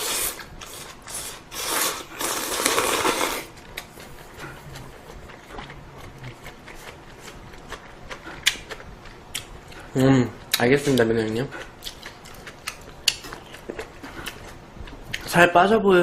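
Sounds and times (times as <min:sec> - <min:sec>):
person slurping noodles: 0:00.0 - 0:03.5
chewing: 0:00.6 - 0:15.3.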